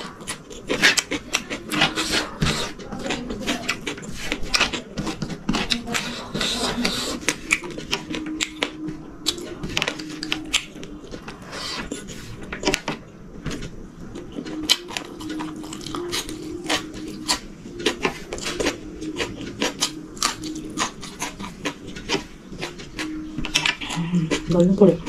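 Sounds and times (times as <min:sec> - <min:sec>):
faint hum: 0:00.0 - 0:25.0
person chewing food: 0:00.0 - 0:25.0.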